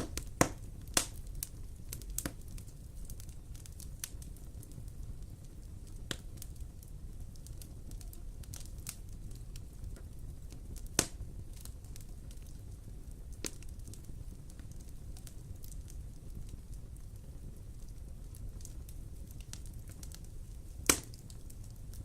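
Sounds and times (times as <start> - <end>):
sharp pops of burning wood: 0.0 - 6.6, 7.3 - 16.6, 17.8 - 22.0
wood fire crackling: 0.0 - 22.0.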